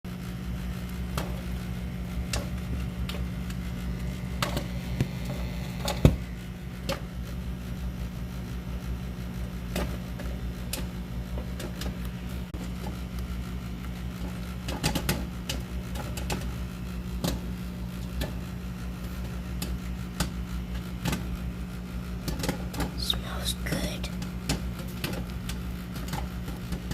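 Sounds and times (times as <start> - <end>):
microwave oven humming: 0.1 - 26.9
popcorn popping: 9.4 - 21.4, 22.2 - 23.0, 24.2 - 26.9.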